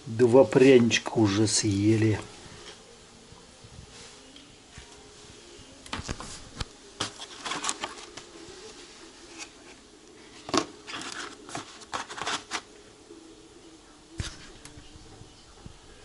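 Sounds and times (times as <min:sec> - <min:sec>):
faint steady hum: 0:00.0 - 0:16.0
rustling and crinkling: 0:02.2 - 0:12.7.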